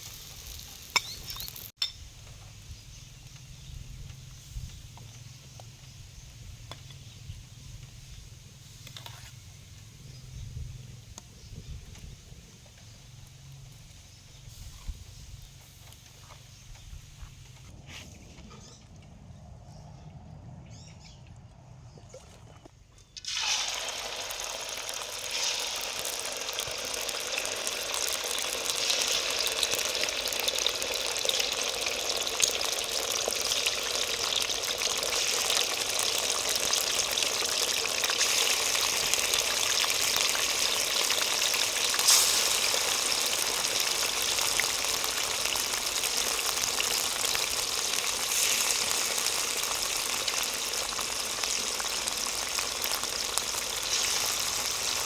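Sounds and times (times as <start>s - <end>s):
food sizzling in hot oil: 0.0s - 2.2s, 23.2s - 55.0s
loud oil crackle: 23.2s - 55.0s.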